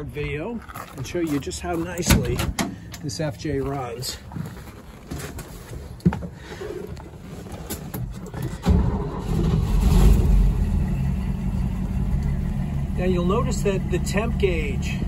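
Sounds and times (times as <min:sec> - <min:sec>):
car engine starting and idling: 0:07.7 - 0:15.0.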